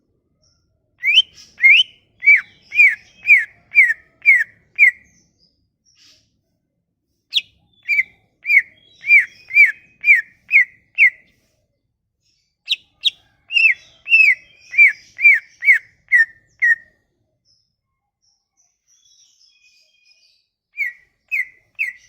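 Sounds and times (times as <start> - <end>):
songbird whistling: 1.0 - 5.1, 7.3 - 11.2, 12.7 - 16.9, 20.8 - 22.0.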